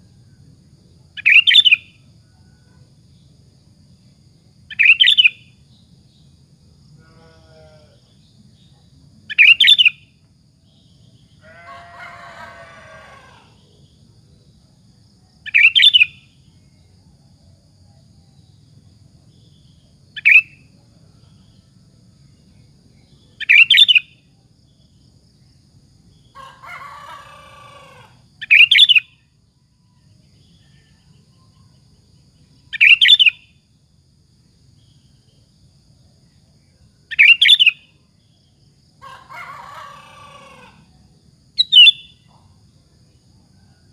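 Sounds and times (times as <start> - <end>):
bulbul whistled song: 41.6 - 42.2.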